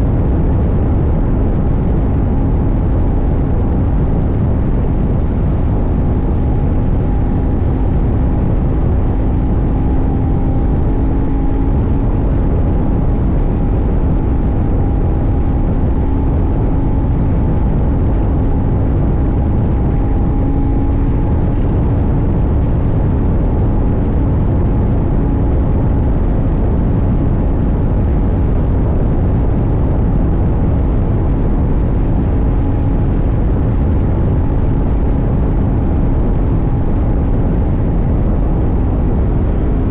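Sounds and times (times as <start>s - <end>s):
wind rush on microphone: 0.0s - 39.9s
motorcycle engine cruising: 0.2s - 28.6s.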